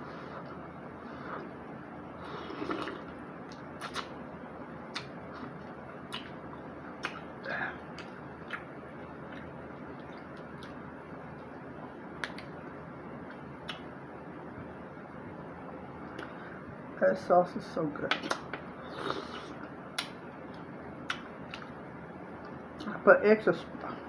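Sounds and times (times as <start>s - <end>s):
chewing smacks: 2.6s - 4.2s, 4.9s - 7.3s, 7.9s - 10.8s, 12.2s - 12.5s, 19.1s - 21.8s.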